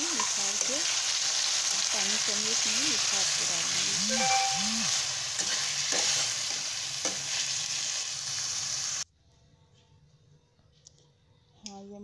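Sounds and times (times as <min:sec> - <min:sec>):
chicken and onions sizzling: 0:00.0 - 0:09.0.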